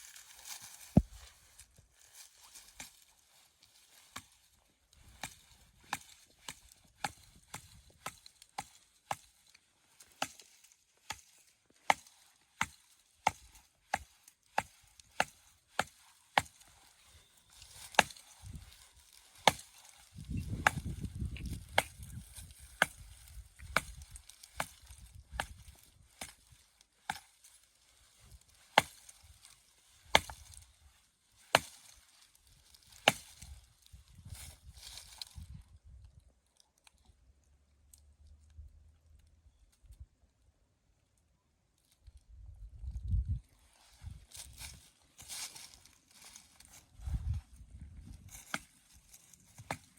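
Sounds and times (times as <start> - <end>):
axe chopping wood: 5.2 - 9.3, 10.2 - 10.4, 11.0 - 16.7, 17.8 - 18.6, 19.3 - 26.5, 27.1 - 27.3, 28.8 - 29.0, 30.1 - 30.6, 31.5 - 31.8, 32.9 - 33.5, 48.4 - 48.7, 49.6 - 49.9.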